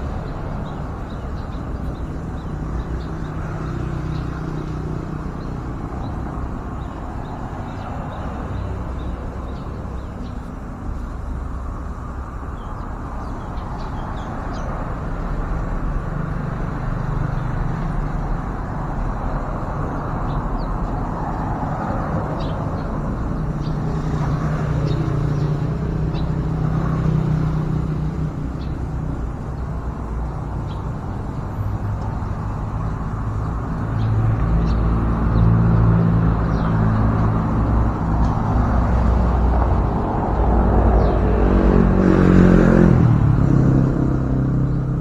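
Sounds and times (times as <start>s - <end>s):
road traffic hum: 0.0s - 45.0s.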